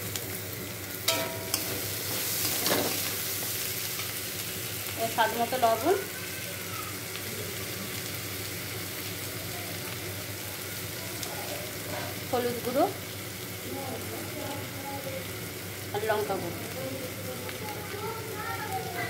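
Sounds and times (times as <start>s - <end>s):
onions sizzling in hot oil: 0.0s - 19.0s
metal spatula clicking on pan: 1.1s - 1.8s.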